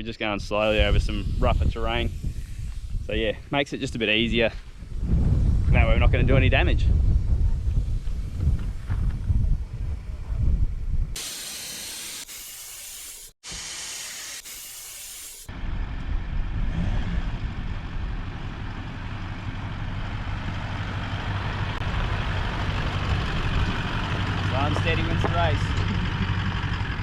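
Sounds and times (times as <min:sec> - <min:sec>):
wind noise: 0:00.3 - 0:11.2, 0:21.8 - 0:25.8
air hissing out of tyre: 0:00.6 - 0:03.2, 0:11.2 - 0:15.5
vehicle engine droning: 0:15.5 - 0:27.0.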